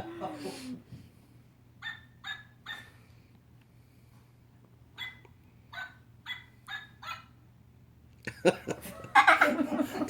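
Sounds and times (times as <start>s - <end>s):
small dog yipping: 1.8s - 2.9s, 5.0s - 5.2s, 5.8s - 7.3s.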